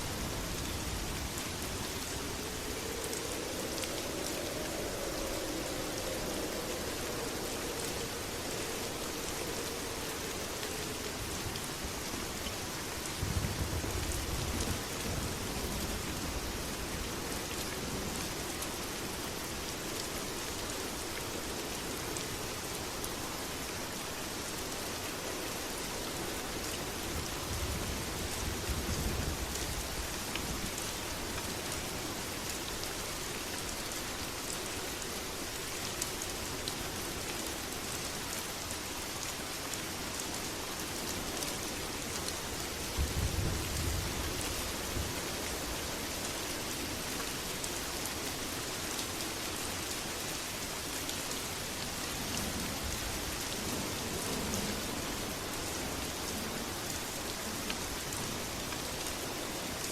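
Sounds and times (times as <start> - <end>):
heavy rain: 0.0 - 59.9
low rolls of thunder: 42.9 - 45.4.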